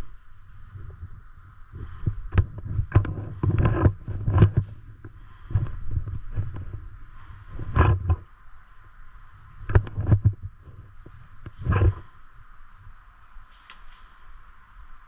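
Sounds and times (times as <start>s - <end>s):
sharp knocks and thumps: 2.3s - 6.8s, 7.5s - 8.3s, 9.6s - 12.1s.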